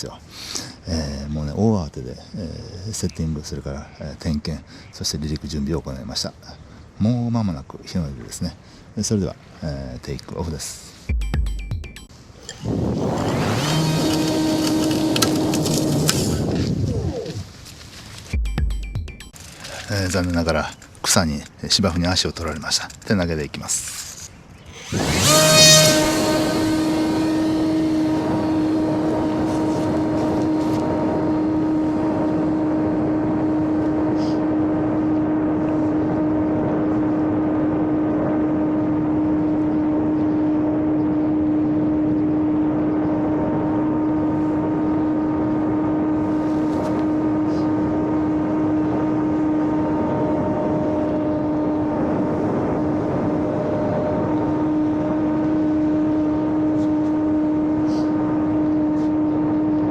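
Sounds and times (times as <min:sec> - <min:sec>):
model airplane motor buzzing: 0:12.4 - 0:16.8, 0:23.9 - 0:59.9
rushing air: 0:24.6 - 0:28.5.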